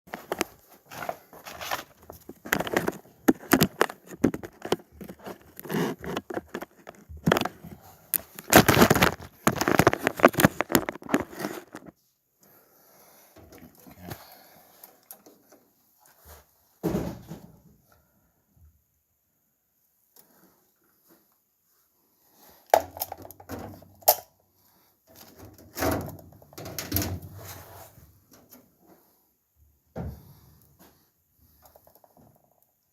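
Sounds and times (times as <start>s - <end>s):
rustling and crinkling: 0.1s - 12.1s, 25.0s - 29.2s.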